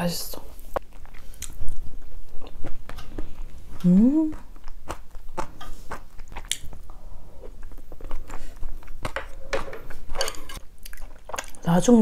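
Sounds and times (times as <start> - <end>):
person chewing: 0.6 - 11.6
soft clicks and wet mouth sounds: 0.7 - 6.8, 10.8 - 11.7.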